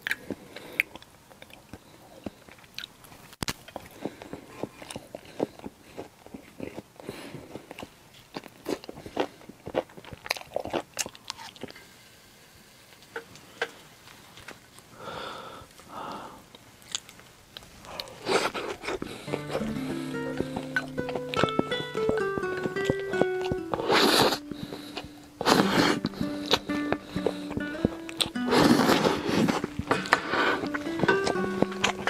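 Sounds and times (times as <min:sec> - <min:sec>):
chewing and biting meat: 0:00.0 - 0:11.8, 0:16.8 - 0:32.0.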